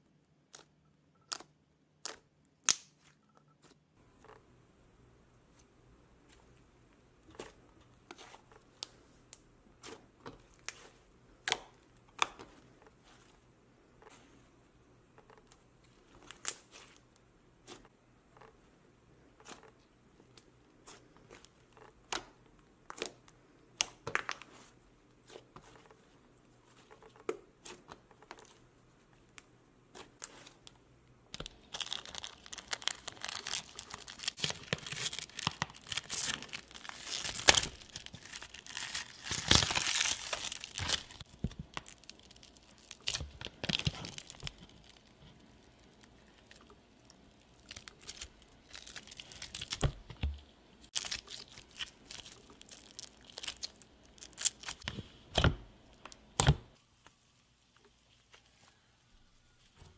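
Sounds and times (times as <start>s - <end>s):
slime crackling and popping: 31.4s - 50.0s, 50.9s - 54.9s.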